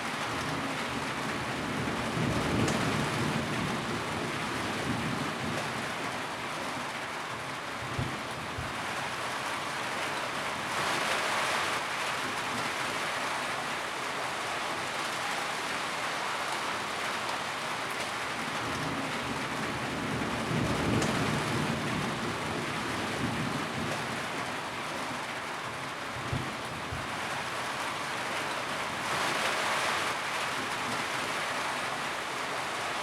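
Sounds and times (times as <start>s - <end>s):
rain drumming on a tin roof: 0.0s - 33.0s.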